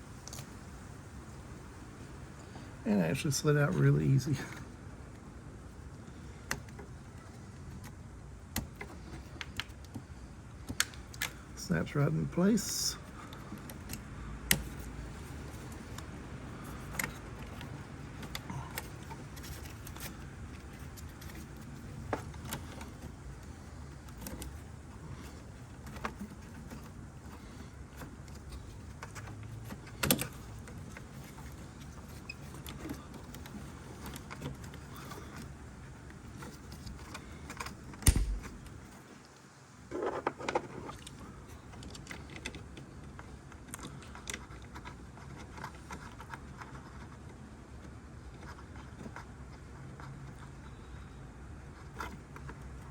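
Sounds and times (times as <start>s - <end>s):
steady low hum: 0.0s - 39.9s
sharp knocks: 38.0s - 38.6s.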